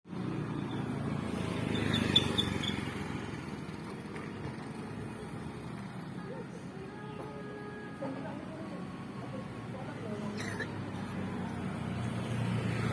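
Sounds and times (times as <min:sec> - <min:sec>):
motorbike engine passing by: 0:00.1 - 0:03.9.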